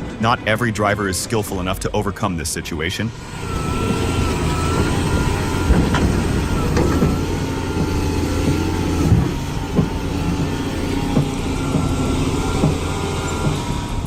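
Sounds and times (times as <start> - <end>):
heavy vehicle engine running: 0.0 - 14.0
sharp knocks and clunks: 3.4 - 14.0.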